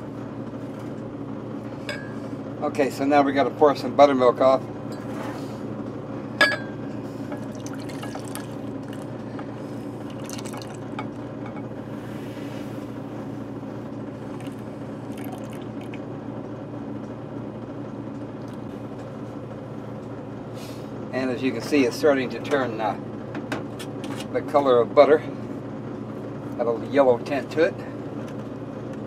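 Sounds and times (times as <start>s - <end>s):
steady low hum: 0.0s - 29.0s
liquid trickling and dripping: 7.4s - 9.2s, 10.0s - 10.9s, 14.3s - 16.0s.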